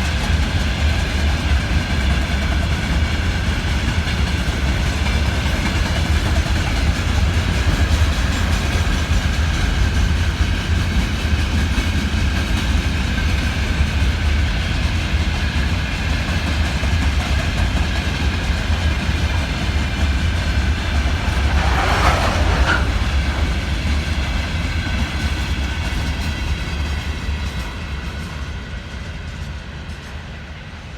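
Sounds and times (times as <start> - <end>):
freight train rumbling past: 0.0 - 30.9
train wheel clatter: 0.0 - 30.9.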